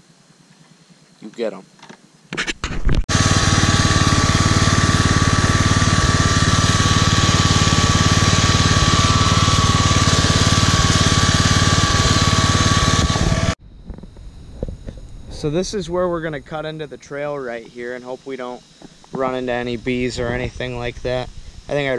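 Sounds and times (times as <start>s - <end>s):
small petrol engine running: 3.1s - 13.6s.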